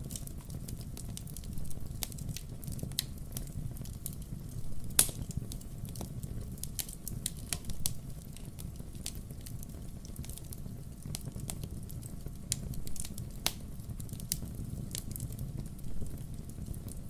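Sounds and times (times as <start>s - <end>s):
firewood crackling and popping: 0.0s - 17.0s
low steady fire rumble: 0.0s - 17.0s.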